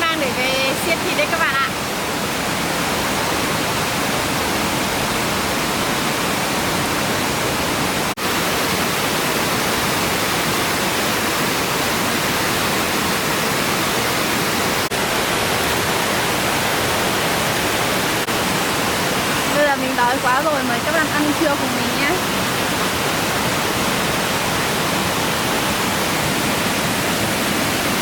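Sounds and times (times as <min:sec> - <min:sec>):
waterfall pouring: 0:00.0 - 0:28.0.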